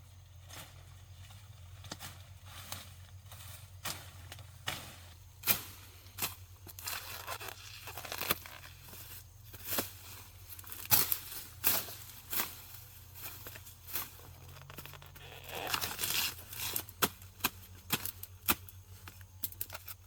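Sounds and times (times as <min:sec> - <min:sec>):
tearing and crackling: 0:06.6 - 0:09.0, 0:13.9 - 0:16.9.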